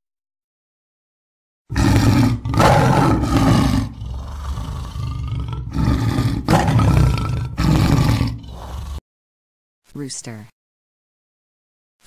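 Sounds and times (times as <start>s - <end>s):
tiger growling rumble: 1.7s - 9.0s
tiger roaring: 1.7s - 9.0s.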